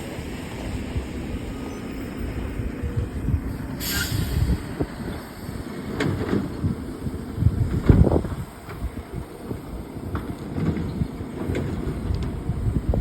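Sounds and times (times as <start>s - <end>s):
garbage truck engine rumbling: 0.0s - 13.0s
short hiss: 3.8s - 4.8s.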